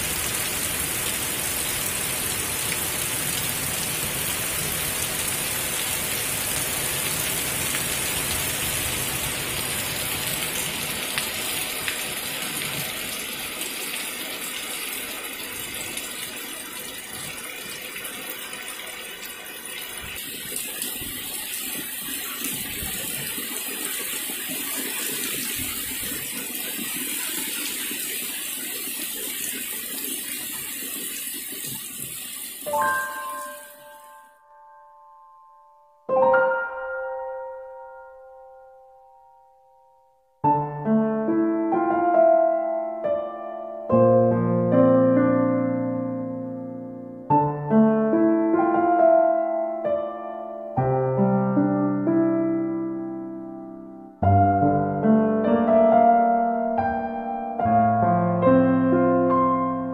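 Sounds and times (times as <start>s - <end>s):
heavy rain pouring: 0.0s - 34.1s.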